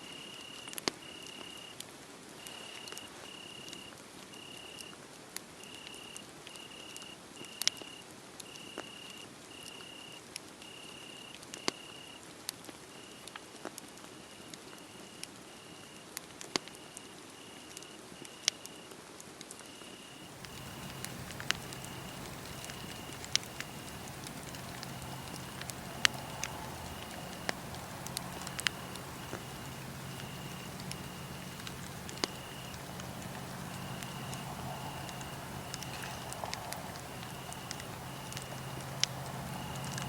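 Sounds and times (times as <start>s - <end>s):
cricket chirping: 2.4s - 4.9s, 5.6s - 12.2s, 19.7s - 40.0s
low hum: 20.2s - 40.0s
wood fire crackling: 20.2s - 40.0s.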